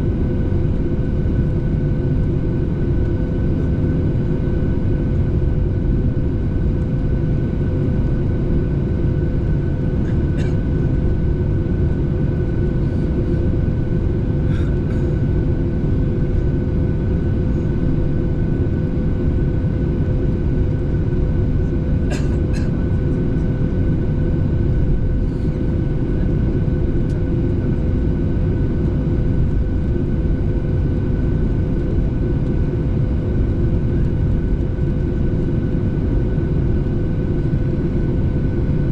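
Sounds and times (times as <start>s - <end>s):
airliner cabin engine rumble: 0.0s - 38.9s.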